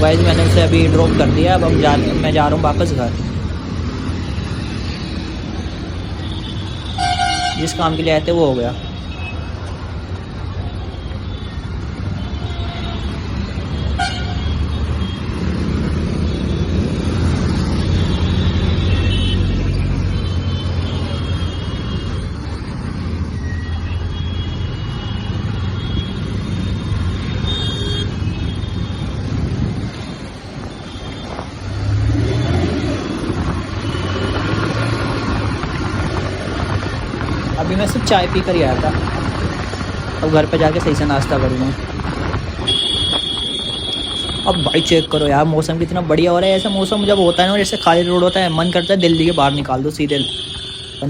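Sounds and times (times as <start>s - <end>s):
vehicle horns honking: 6.0s - 9.5s, 10.8s - 15.4s, 18.0s - 22.3s, 23.8s - 29.2s, 33.8s - 35.0s, 42.6s - 45.4s, 46.5s - 51.0s
motorcycle engine riding: 28.1s - 45.1s.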